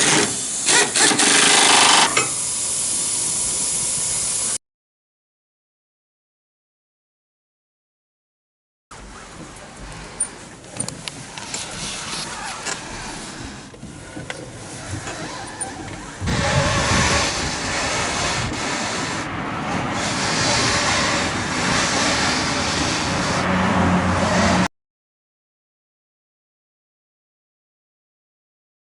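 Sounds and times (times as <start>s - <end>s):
rough vehicle engine running: 8.9s - 24.7s.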